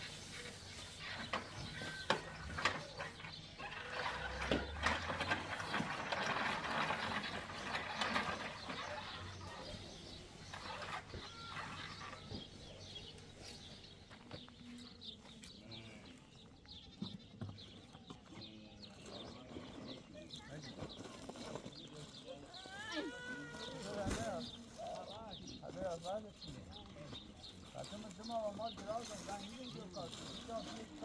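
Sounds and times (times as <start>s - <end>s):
dense rustling noise: 0.0s - 14.0s
sheep and goats bleating: 11.1s - 12.3s.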